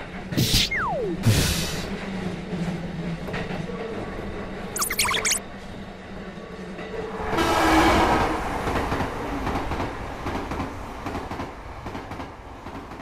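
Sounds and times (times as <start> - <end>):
train running on rails: 6.6 - 13.0.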